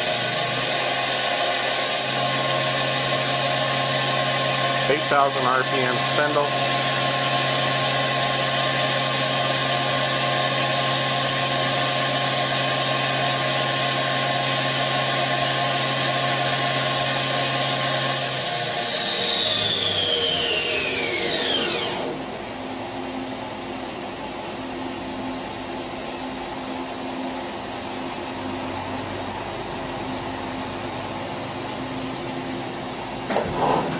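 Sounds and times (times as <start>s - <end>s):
machine spindle whine: 0.0s - 23.3s.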